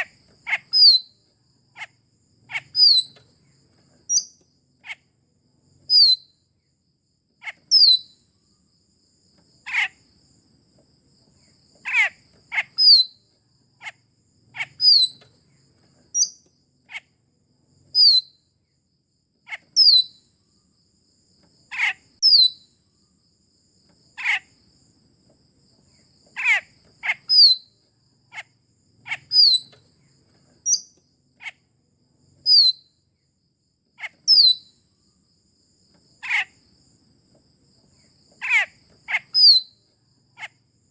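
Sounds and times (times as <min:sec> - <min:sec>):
myna whistling calls: 0:00.0 - 0:01.1, 0:02.5 - 0:03.2, 0:14.6 - 0:15.2, 0:29.1 - 0:29.8, 0:38.4 - 0:39.7.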